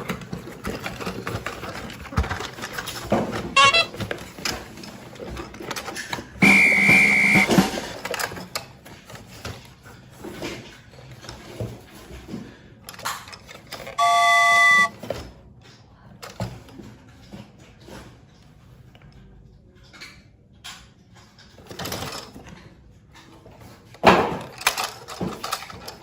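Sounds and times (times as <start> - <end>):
toys clicking and knocking: 0.0 - 8.2, 12.9 - 14.9, 24.0 - 26.0
electronic chord beep: 6.4 - 7.5, 14.0 - 14.9
high electronic beep: 6.4 - 7.5, 14.0 - 14.9.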